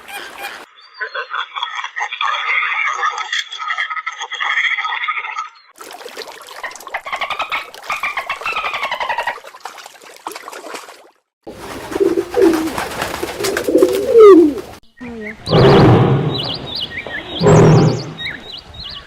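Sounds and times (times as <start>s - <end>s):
rapid pulsing animal call: 11.6s - 14.8s
low gliding animal calls: 13.7s - 15.7s.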